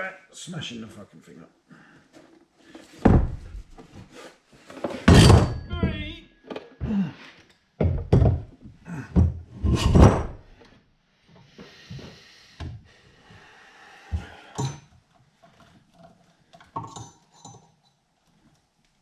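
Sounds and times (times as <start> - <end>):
heavy thuds and knocks: 3.0 - 3.8, 5.0 - 6.1, 7.8 - 10.5.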